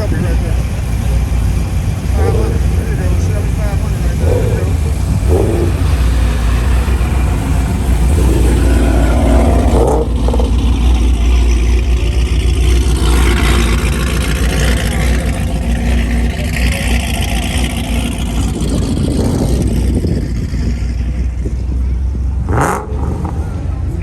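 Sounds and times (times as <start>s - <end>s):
car engines rumbling: 0.0s - 24.0s
cars driving past: 0.0s - 24.0s
engine revving: 0.0s - 24.0s.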